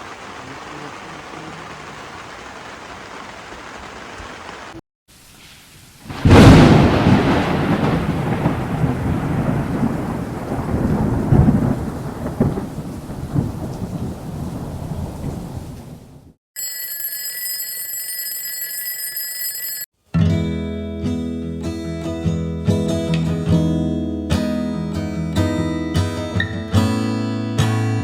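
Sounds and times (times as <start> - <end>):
steady rain: 0.0 - 16.4
thunderclap and rolling thunder: 6.1 - 16.4
steady ringing tone: 16.6 - 19.9.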